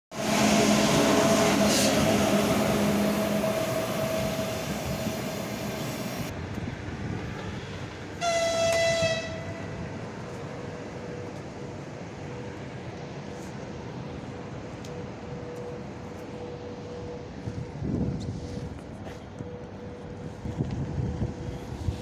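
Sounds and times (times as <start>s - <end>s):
train running: 0.1s - 22.0s
locomotive horn: 8.2s - 9.8s.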